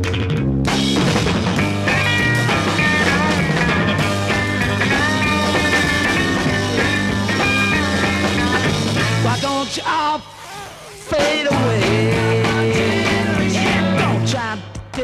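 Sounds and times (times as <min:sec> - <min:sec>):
bass line: 0:00.0 - 0:09.8, 0:11.1 - 0:14.6
electric guitar bending notes: 0:00.1 - 0:09.4.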